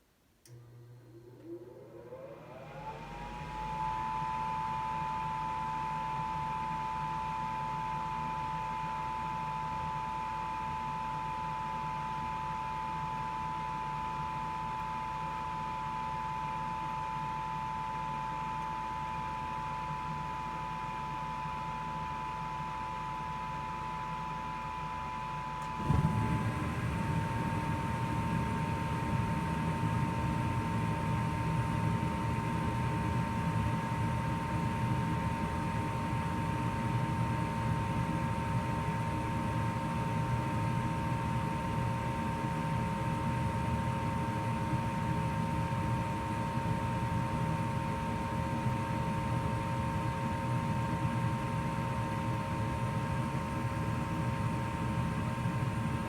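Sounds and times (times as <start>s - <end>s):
furnace motor whine: 0.4s - 56.0s
low burner rumble: 23.4s - 42.7s.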